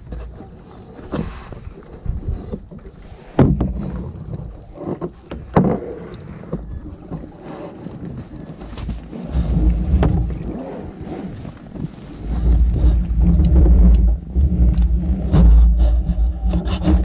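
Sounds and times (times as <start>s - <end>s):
wind rumbling on microphone: 0.0s - 17.0s
paddle splashes and knocks: 2.5s - 7.3s.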